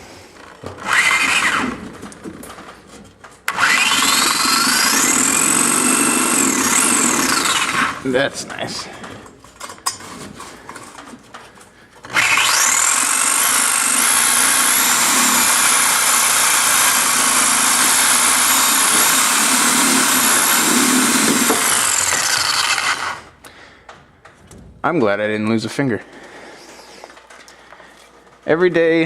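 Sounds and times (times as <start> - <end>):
power cutting tool whining: 0.4 - 1.9, 3.5 - 8.1, 12.0 - 23.4.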